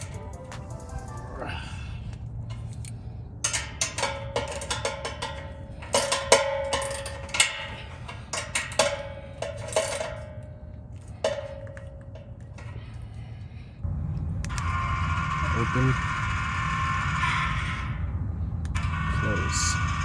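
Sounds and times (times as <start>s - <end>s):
tools clinking on metal bolts: 2.5s - 12.8s.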